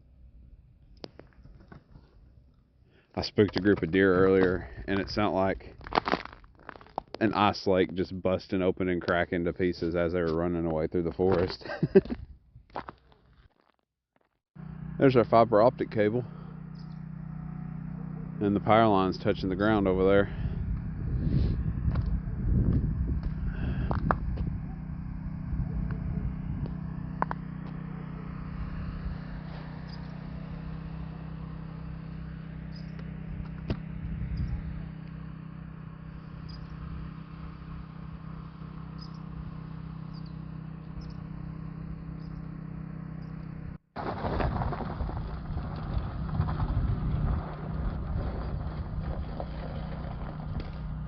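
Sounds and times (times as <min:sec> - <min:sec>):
vehicle engine running: 0:00.0 - 0:12.0, 0:14.6 - 0:51.0.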